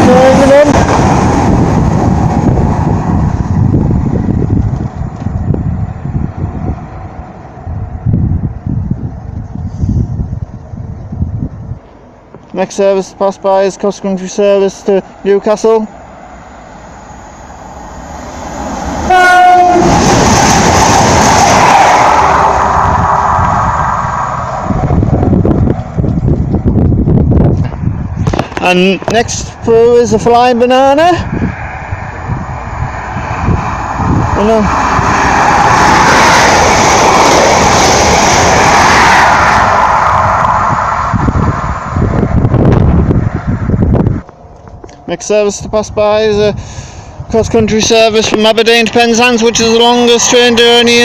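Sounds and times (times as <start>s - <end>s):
train passing at speed: 0.0s - 45.9s, 46.6s - 51.0s
train horn blast: 19.0s - 20.1s.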